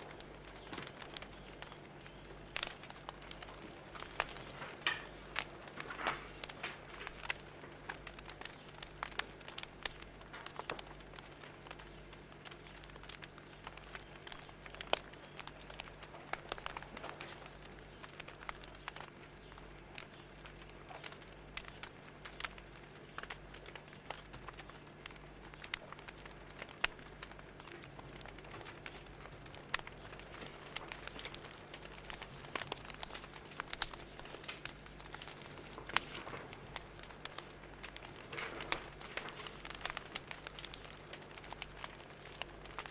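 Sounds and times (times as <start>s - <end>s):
faint low hum: 0.0s - 42.9s
wood fire crackling and popping: 0.0s - 42.9s.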